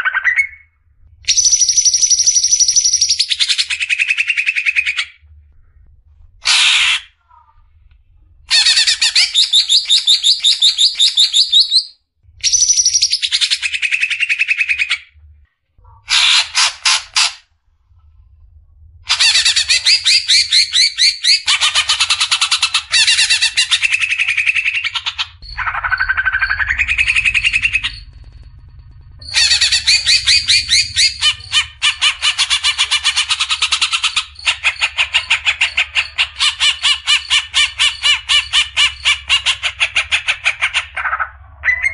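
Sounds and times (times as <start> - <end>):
bird singing rapid notes: 1.3 - 5.0, 19.1 - 39.8.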